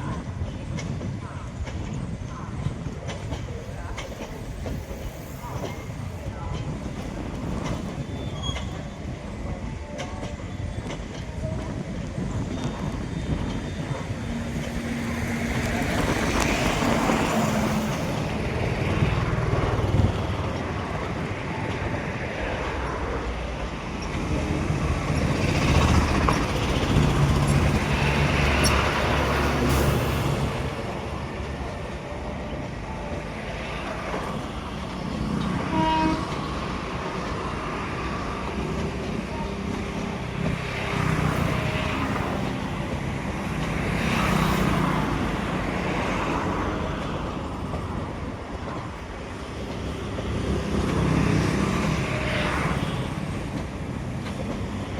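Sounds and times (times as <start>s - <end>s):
road traffic passing: 22.2s - 54.9s.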